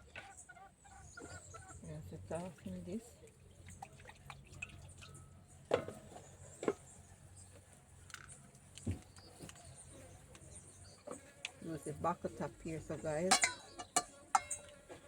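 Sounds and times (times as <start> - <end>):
kitchen utensils knocking: 13.3 - 14.6.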